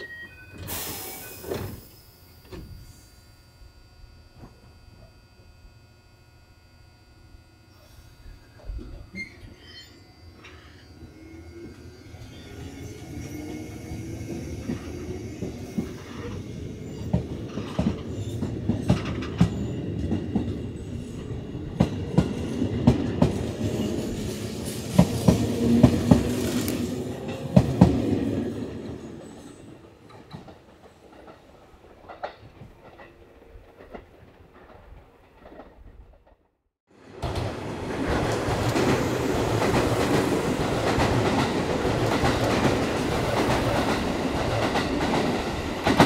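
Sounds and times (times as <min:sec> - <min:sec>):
electric train passing: 0:00.0 - 0:35.7, 0:37.0 - 0:46.0.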